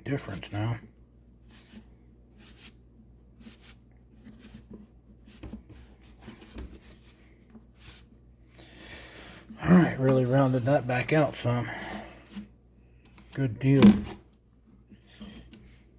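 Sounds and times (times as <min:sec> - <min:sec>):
hands rubbing plastic tube: 0:01.4 - 0:08.2.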